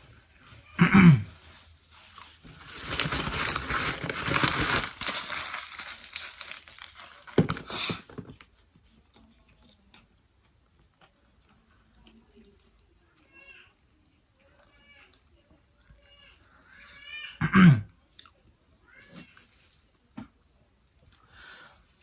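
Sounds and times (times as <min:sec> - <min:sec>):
packaging crinkling: 0:02.2 - 0:08.4.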